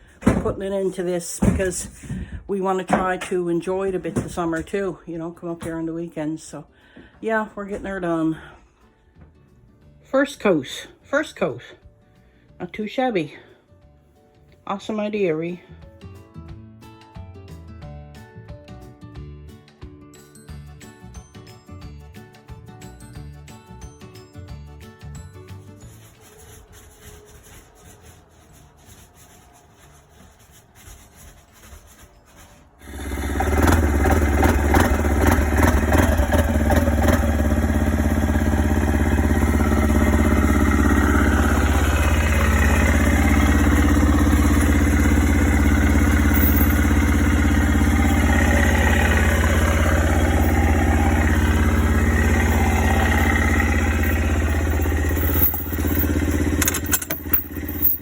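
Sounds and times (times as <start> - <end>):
road noise: 26.0 - 58.0
vehicle engine drone: 32.8 - 58.0.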